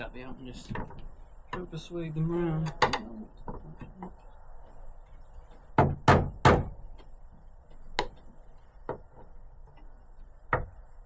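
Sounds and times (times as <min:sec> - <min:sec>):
hammer knocking on metal hinge: 0:05.7 - 0:07.0.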